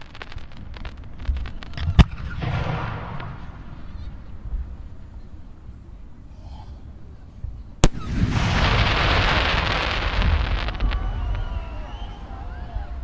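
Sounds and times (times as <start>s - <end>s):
firework pops: 0.0s - 4.2s
firework crackling: 0.0s - 5.1s, 7.8s - 13.0s.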